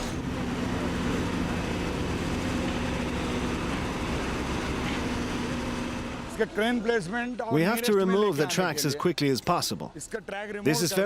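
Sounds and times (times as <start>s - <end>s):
diesel machinery engine hum: 0.0s - 8.7s.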